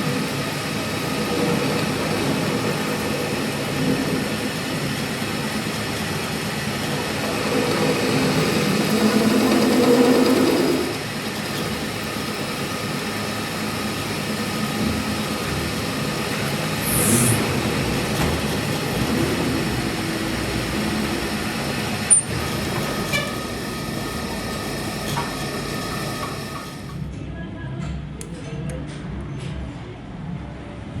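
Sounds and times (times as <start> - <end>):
workshop machinery running: 0.0 - 27.3
short high hiss: 16.8 - 17.6.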